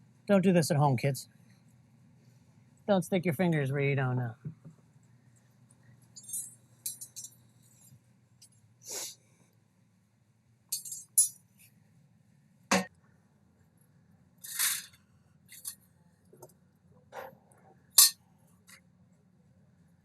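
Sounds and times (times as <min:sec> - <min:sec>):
light clinks: 0:06.1 - 0:07.4, 0:10.7 - 0:11.4.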